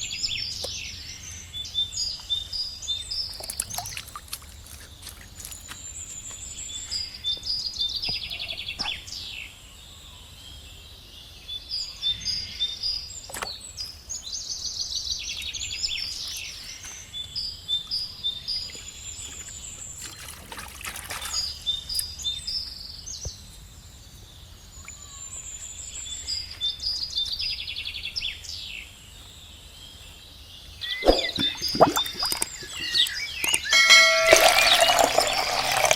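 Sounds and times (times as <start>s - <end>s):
birds chirping and trilling: 0.0s - 35.9s.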